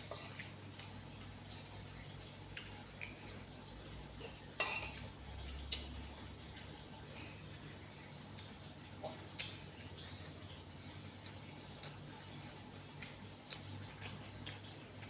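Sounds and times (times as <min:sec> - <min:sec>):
utensils clinking against a bowl: 0:04.6 - 0:05.0.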